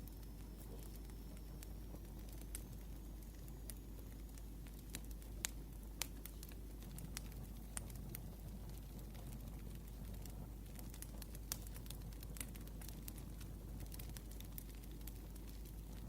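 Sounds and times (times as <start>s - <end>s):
wood fire crackling: 0.0s - 16.0s
sharp fire pops: 4.6s - 16.0s.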